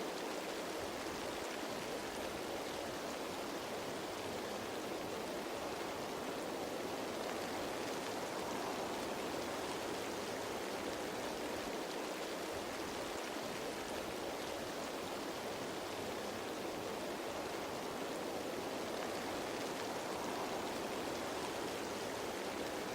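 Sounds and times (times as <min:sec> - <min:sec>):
rain falling on leaves: 0:00.0 - 0:22.9.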